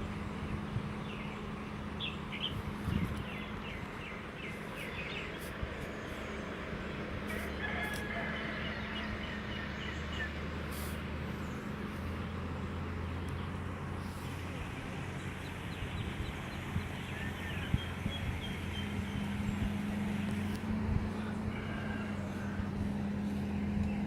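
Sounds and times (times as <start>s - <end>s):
background noise with low hum: 0.0s - 24.0s
rooster crowing: 7.3s - 9.6s, 21.1s - 23.0s.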